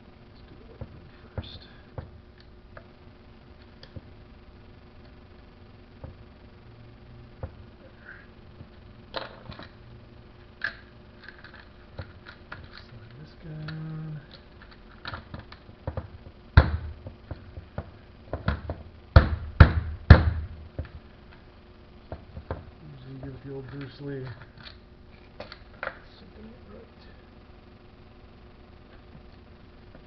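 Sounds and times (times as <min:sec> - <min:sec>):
loud knock: 0:15.9 - 0:17.2, 0:17.8 - 0:20.6.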